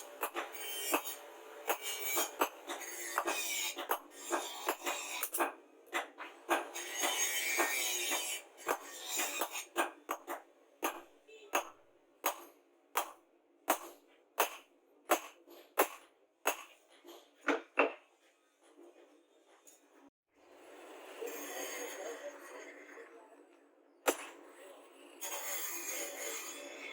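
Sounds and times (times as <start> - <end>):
hammer striking metal: 0.0 - 16.8, 24.1 - 24.4.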